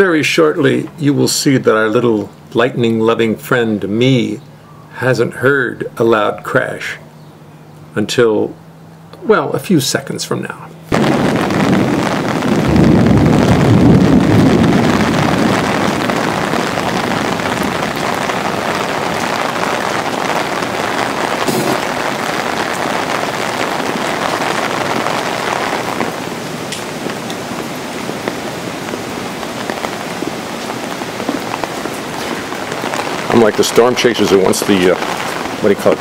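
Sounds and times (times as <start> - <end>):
heavy rain falling: 10.9 - 36.0
sharp thunder crack: 10.9 - 36.0
thunder rumble: 10.9 - 36.0.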